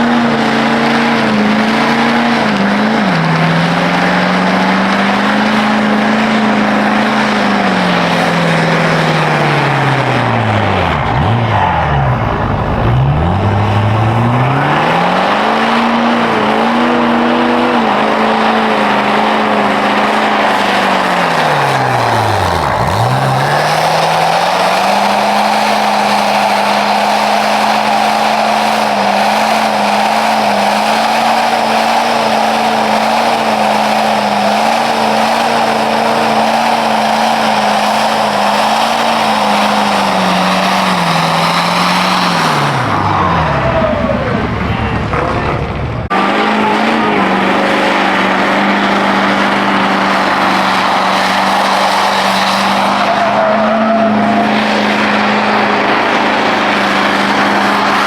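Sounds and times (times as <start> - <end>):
truck engine revving high: 0.0 - 58.0
tyres squealing and hissing: 13.2 - 45.0, 46.3 - 58.0.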